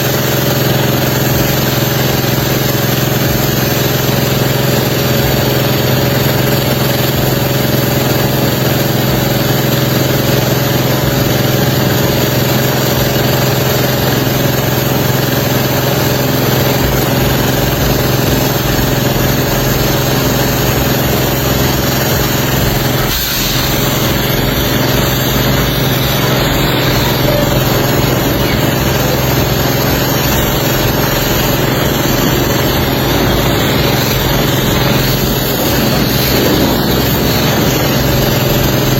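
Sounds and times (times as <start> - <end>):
pressure washer motor hum: 0.0 - 38.9
water jet hissing: 0.0 - 38.9.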